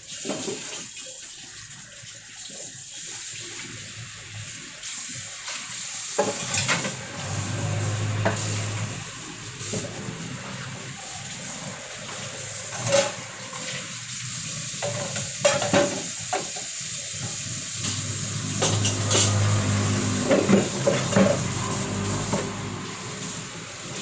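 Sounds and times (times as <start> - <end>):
pot hissing on heat: 3.6 - 24.0
utensils clinking on cookware: 17.9 - 21.4.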